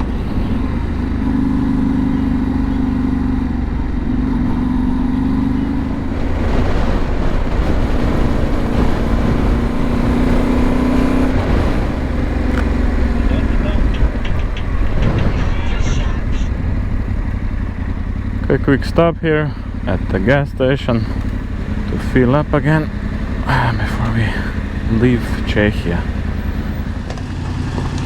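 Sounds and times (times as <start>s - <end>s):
motorcycle engine running: 0.0s - 28.0s
wind rush: 5.0s - 18.4s.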